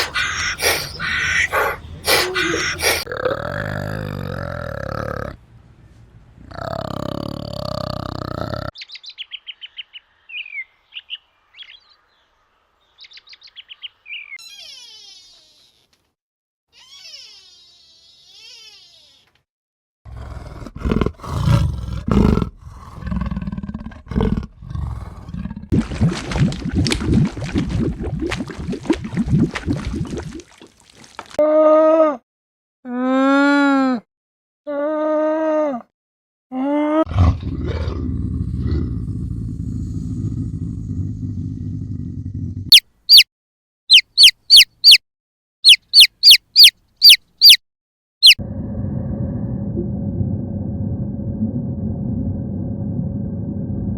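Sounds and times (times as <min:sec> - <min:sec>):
animal squeaks: 0:00.0 - 0:03.1, 0:14.3 - 0:16.0, 0:16.7 - 0:19.4, 0:42.7 - 0:43.3, 0:43.9 - 0:45.0, 0:45.6 - 0:47.6
animal growling roars: 0:00.0 - 0:05.4, 0:06.4 - 0:08.7, 0:20.1 - 0:25.8, 0:37.0 - 0:42.7, 0:48.4 - 0:53.9
low steady rumbling: 0:48.4 - 0:53.9.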